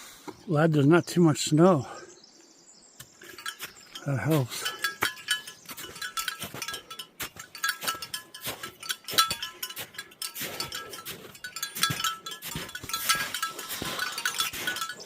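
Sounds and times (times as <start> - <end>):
bells jingling: 3.2 - 15.0
walking footsteps: 3.2 - 15.0.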